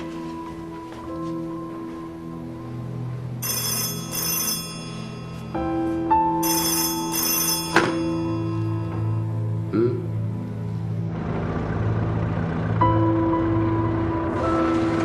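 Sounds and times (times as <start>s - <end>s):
background music: 0.0s - 15.0s
telephone bell ringing: 3.4s - 9.3s.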